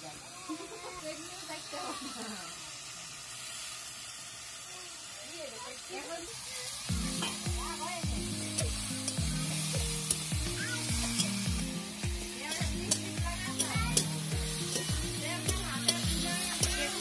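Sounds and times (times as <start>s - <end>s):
onions sizzling in oil: 0.0s - 17.0s
background music with thudding beat: 6.9s - 16.9s
metal spatula scraping pan: 10.9s - 11.5s, 12.5s - 17.0s.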